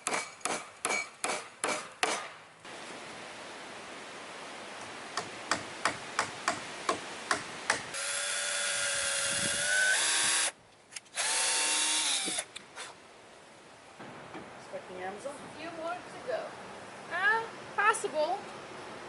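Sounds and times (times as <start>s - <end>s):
hammer driving nails into wood: 0.0s - 2.3s.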